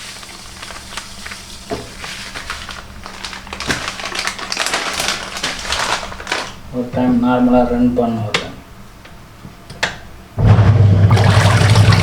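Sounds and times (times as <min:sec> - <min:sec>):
powder rustling into tub: 0:00.0 - 0:06.6.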